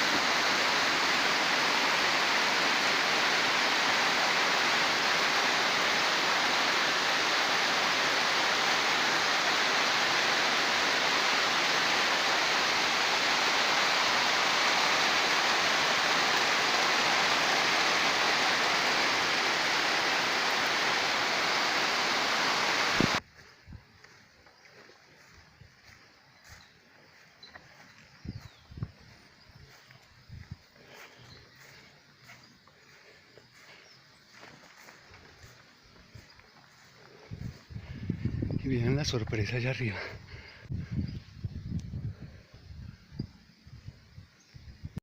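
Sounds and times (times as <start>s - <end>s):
rushing water: 0.0s - 23.2s.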